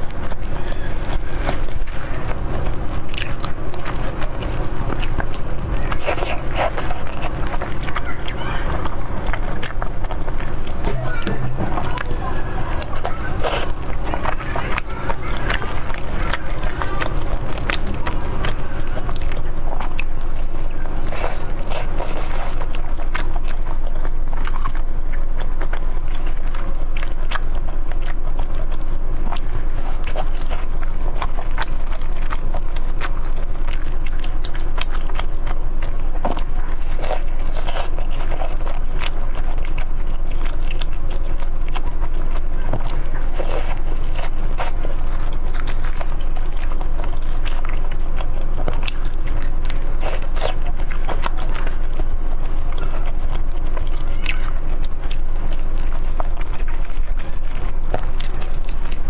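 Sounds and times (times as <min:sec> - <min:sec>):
biting and chewing food: 0:00.0 - 0:59.0
low hum: 0:00.0 - 0:59.0.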